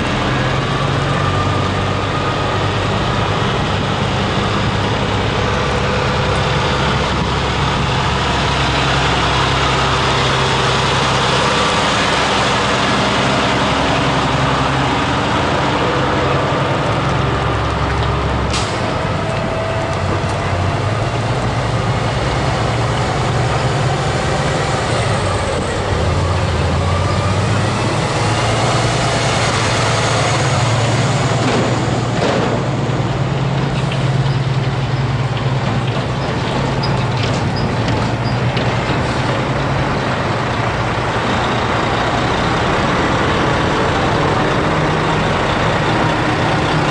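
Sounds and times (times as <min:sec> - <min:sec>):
truck diesel engines rumbling: 0:00.0 - 0:46.9.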